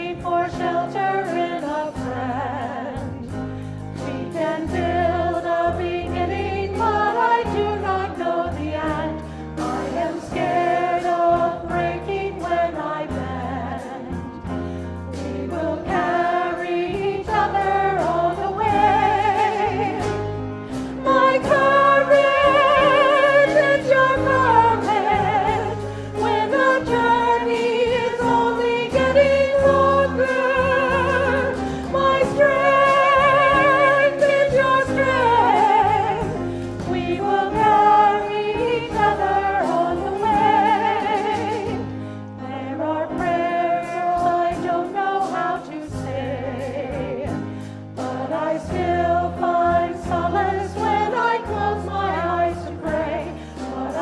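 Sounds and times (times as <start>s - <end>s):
choir singing a slow hymn: 0.0s - 54.0s
sustained instrumental accompaniment: 0.0s - 54.0s.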